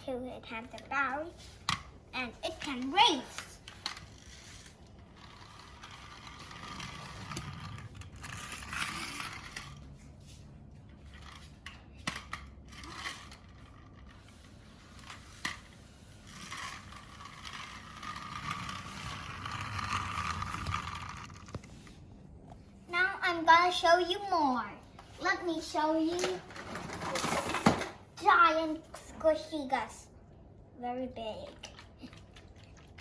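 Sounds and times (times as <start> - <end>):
plastic toys scraping on surface: 2.4 - 9.9, 12.7 - 22.0, 25.6 - 28.0.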